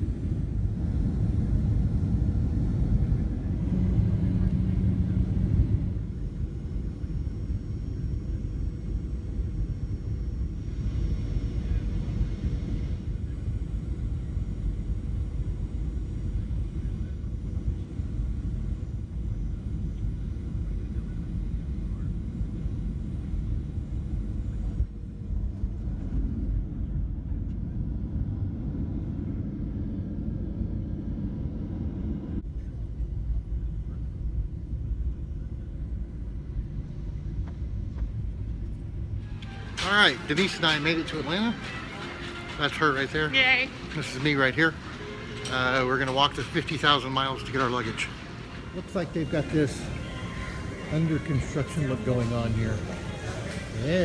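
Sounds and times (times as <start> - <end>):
faint steady hum: 0.0 - 54.0
jet engine rumble in cabin: 0.0 - 54.0.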